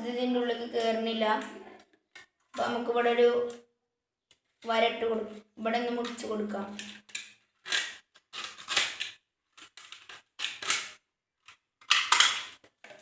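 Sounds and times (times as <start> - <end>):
plastic bottle crackling: 6.0 - 11.0, 11.8 - 13.0.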